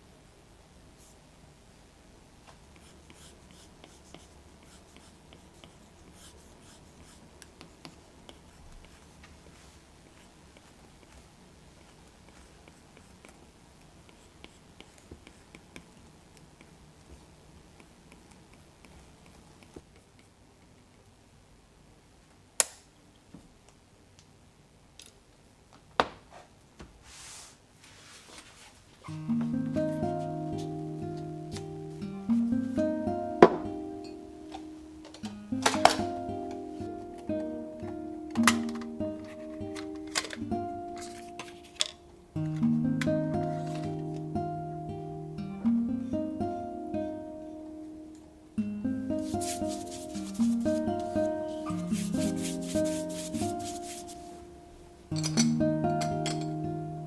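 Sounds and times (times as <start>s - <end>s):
brush strokes on paper: 27.0s - 29.0s, 29.9s - 31.0s, 49.2s - 54.5s.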